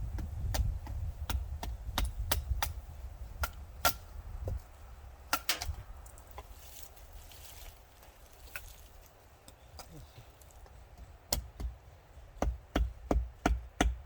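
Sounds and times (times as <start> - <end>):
dry wood cracking: 5.3 - 10.8.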